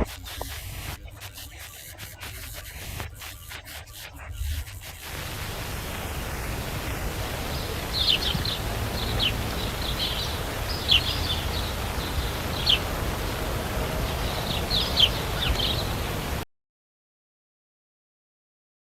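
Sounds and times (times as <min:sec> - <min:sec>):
small birds chirping: 0:00.4 - 0:16.4
steady low rumble: 0:05.0 - 0:16.4.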